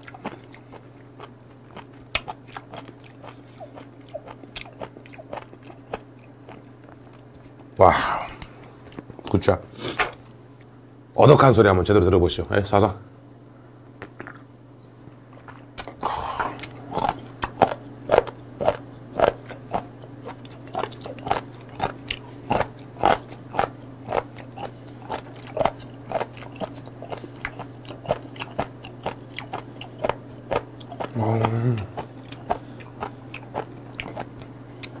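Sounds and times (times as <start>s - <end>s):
crunchy chewing: 0.0s - 7.7s, 15.4s - 35.0s.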